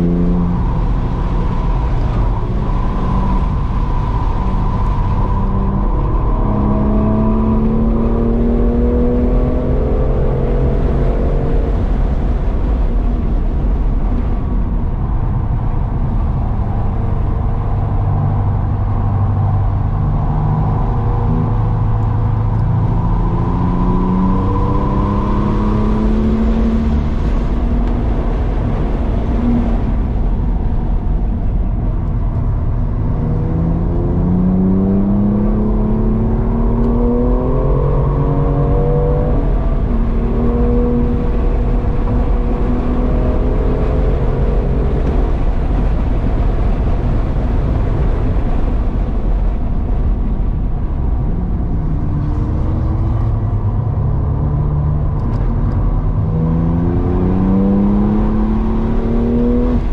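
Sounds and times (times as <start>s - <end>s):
car engine accelerating: 0.0s - 59.9s
road and wind rumble: 0.0s - 59.9s.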